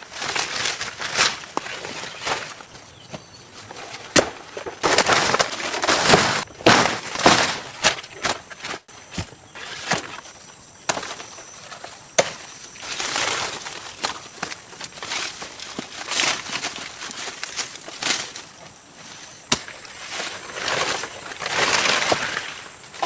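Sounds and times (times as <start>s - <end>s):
rustling through leaf litter: 0.0s - 23.0s
twigs snapping: 0.1s - 10.2s.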